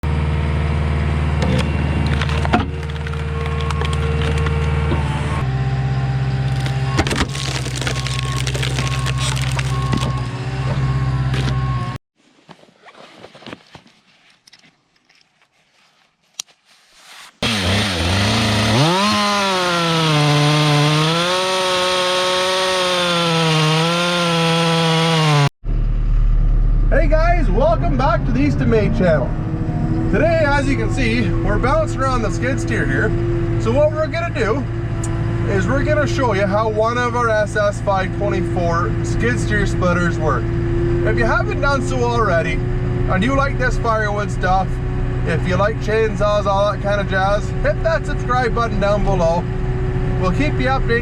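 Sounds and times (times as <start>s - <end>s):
skid steer engine running: 0.0s - 12.0s, 17.4s - 51.0s
wood cracking and splintering: 2.0s - 4.8s, 6.4s - 10.2s, 17.4s - 25.4s
chainsaw running at high revs: 17.4s - 25.5s.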